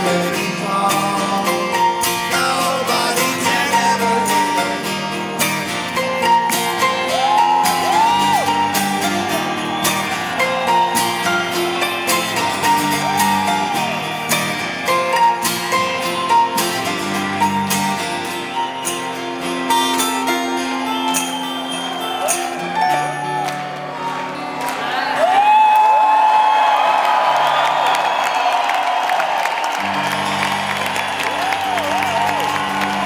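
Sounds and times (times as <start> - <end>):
electric guitar lead notes: 0.0 - 24.5
rock band playing: 0.0 - 25.0, 29.4 - 33.0
acoustic guitar: 0.0 - 25.2, 29.8 - 33.0.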